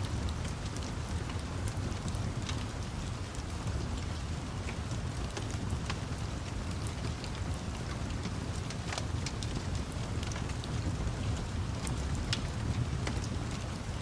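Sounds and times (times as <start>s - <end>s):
steady rain: 0.0s - 14.0s
wood fire crackling: 0.0s - 14.0s.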